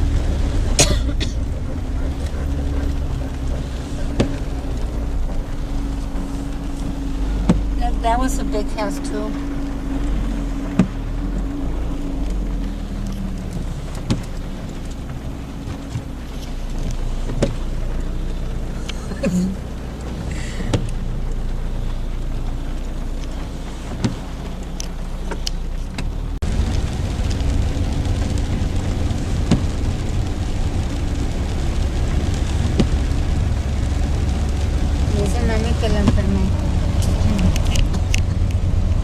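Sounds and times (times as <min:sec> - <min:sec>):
car engine and road rumble: 0:00.0 - 0:39.0
sharp clicks and knocks: 0:13.0 - 0:17.7.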